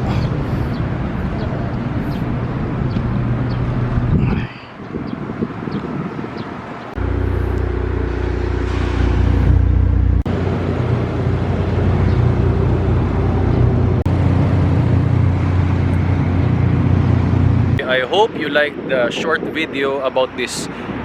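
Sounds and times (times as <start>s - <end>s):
car engine idling: 7.0s - 17.8s.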